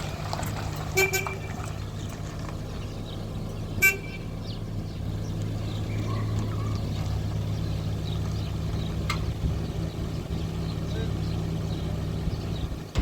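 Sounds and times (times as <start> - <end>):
car engine running: 0.0 - 13.0
car horn toot: 0.9 - 1.6, 3.8 - 4.3.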